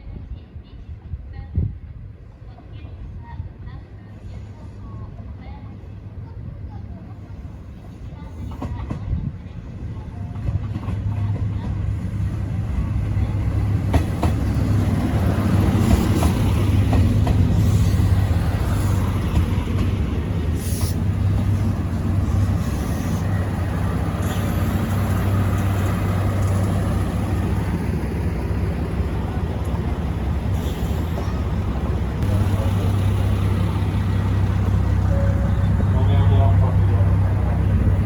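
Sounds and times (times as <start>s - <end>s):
vehicle engine rumble and hum: 12.4s - 38.0s.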